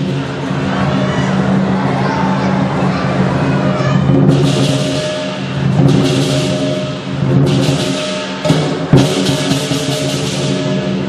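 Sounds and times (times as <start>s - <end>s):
big drum beating: 0.0s - 11.0s
cymbals clashing: 0.0s - 11.0s
ringing gong: 3.8s - 11.0s.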